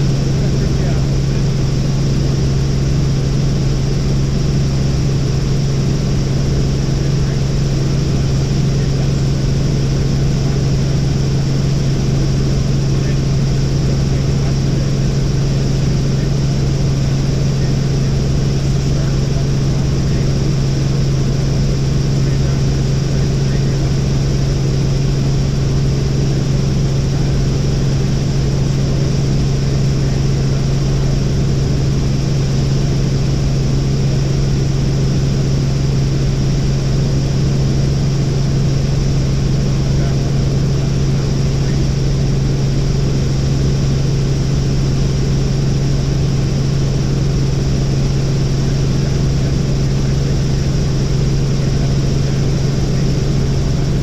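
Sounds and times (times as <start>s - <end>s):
helicopter engine and rotors: 0.0s - 54.0s.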